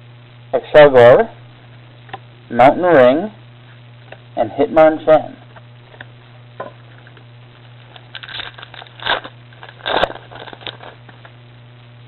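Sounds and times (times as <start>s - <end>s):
steady low hum: 0.0s - 12.0s
foil wrapper crinkling and tearing: 7.8s - 11.4s.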